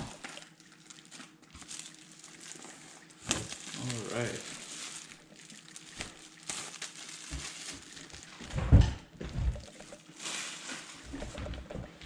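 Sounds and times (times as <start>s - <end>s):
packaging rustling: 0.0s - 8.6s, 9.5s - 11.7s.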